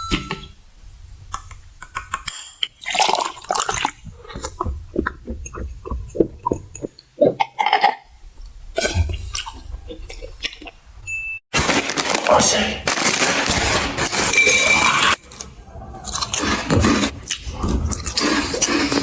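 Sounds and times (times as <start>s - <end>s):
wet mouth eating and slurping: 2.0s - 10.8s, 16.0s - 19.0s.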